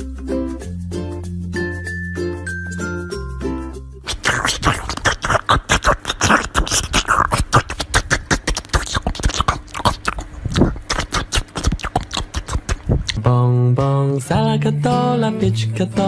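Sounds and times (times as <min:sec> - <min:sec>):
musical jingle: 0:01.5 - 0:04.0
beatbox vocal clicks and pops: 0:04.0 - 0:14.5.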